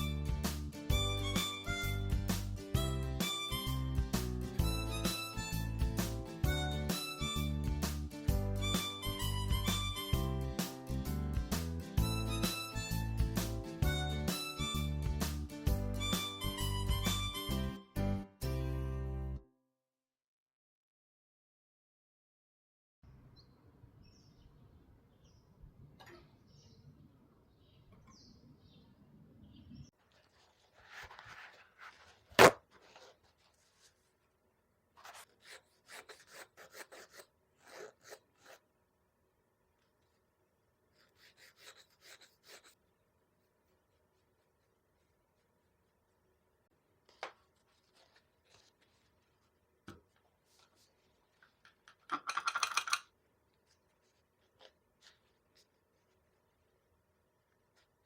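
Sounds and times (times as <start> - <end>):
small tools clicking and scraping: 51.6 - 53.1.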